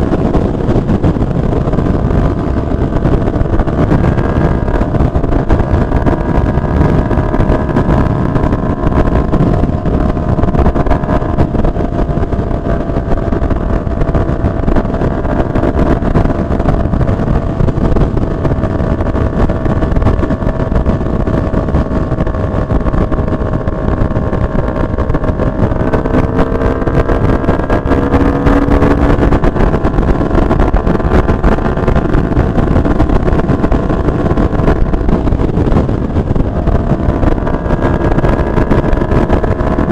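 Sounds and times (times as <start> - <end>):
motorcycle engine: 0.0 - 39.9
wind rushing over microphone: 0.0 - 39.9.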